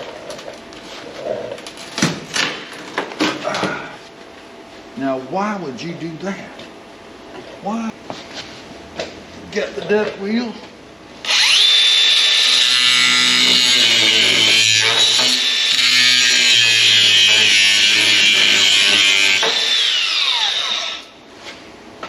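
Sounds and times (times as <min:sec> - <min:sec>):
wire wheel grinder scrubbing metal: 0:11.3 - 0:21.1.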